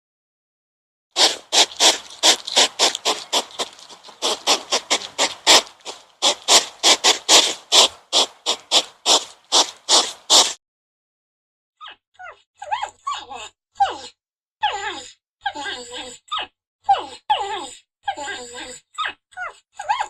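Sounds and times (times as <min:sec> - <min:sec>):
animal making harsh calls: 0:01.2 - 0:10.6.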